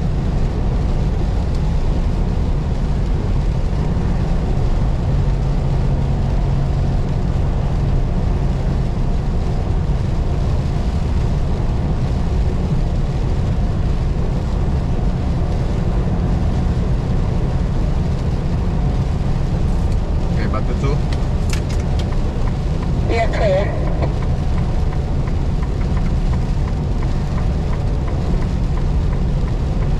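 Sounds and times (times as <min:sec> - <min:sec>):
diesel engine drone: 0:00.0 - 0:29.9
road and tyre noise: 0:00.0 - 0:29.9.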